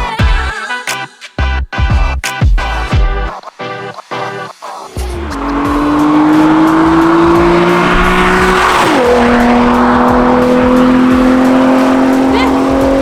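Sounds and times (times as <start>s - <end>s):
car engine accelerating: 4.8s - 13.0s
gear shift: 5.0s - 13.0s.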